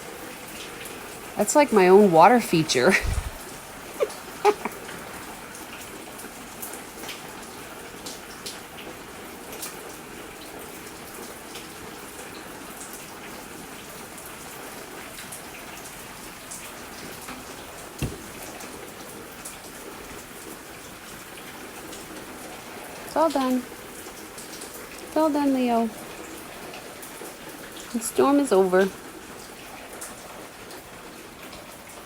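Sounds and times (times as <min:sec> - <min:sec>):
water drips ticking: 0:00.0 - 0:31.8
steady rain falling: 0:00.0 - 0:32.0
short dull thump: 0:18.0 - 0:18.6.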